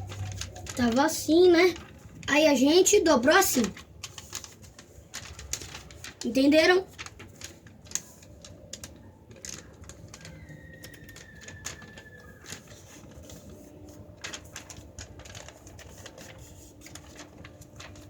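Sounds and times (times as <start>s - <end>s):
paper being folded and creased: 0.0s - 18.0s.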